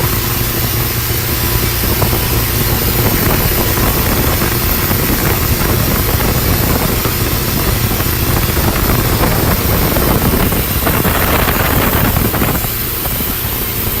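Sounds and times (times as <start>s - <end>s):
loud rush of noise: 0.0s - 14.0s
speedboat engine running: 0.0s - 14.0s.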